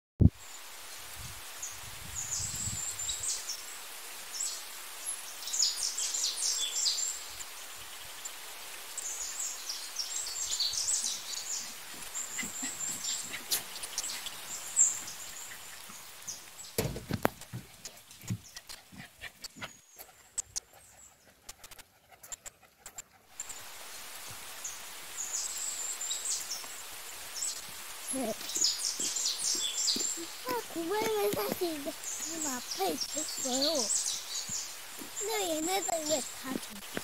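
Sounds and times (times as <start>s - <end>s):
steady outdoor hiss: 0.2s - 37.0s
small birds chirping: 0.4s - 37.0s
sharp knocks and scuffs: 16.8s - 19.7s.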